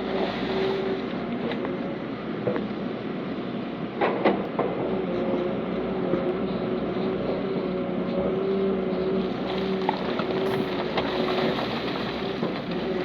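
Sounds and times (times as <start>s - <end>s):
diesel earthmoving machinery: 0.0s - 13.0s
steady machine whine: 10.4s - 11.4s.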